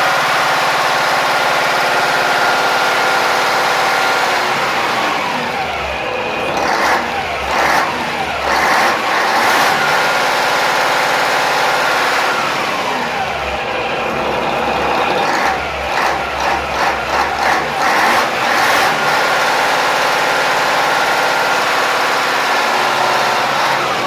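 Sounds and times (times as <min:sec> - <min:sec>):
diesel marine engine revving: 0:00.0 - 0:24.0.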